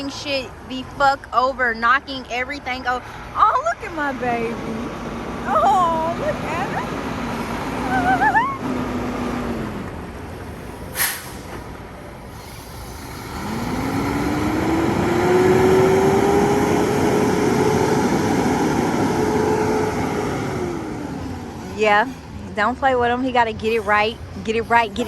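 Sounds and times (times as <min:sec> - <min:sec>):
truck diesel engine revving: 0:00.0 - 0:25.0
air brake hiss: 0:10.9 - 0:11.6, 0:12.3 - 0:13.1.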